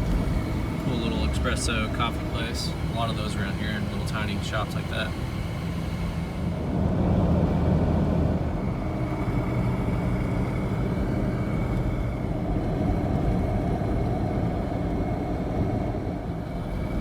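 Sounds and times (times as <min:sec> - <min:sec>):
car engine hum: 0:00.0 - 0:17.0
tyre and road noise: 0:00.0 - 0:17.0.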